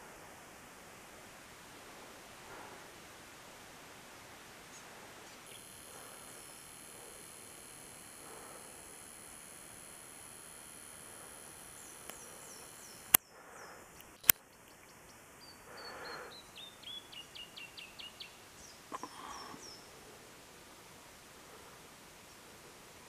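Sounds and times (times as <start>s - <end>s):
steady high whine: 0.0s - 14.4s
small birds chirping: 4.7s - 20.0s
sharp clicks: 5.5s - 13.2s, 14.0s - 14.9s.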